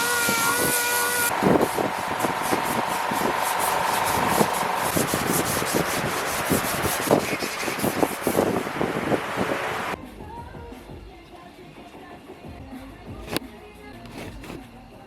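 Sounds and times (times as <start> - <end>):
sanding car body filler: 0.0 - 9.9
faint steady whine: 0.0 - 10.0.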